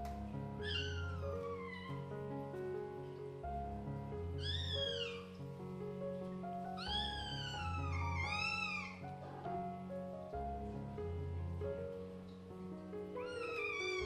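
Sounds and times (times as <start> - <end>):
background music: 0.0 - 14.0
kitten meowing: 0.6 - 2.1, 4.4 - 5.4, 6.8 - 9.1, 13.2 - 14.0.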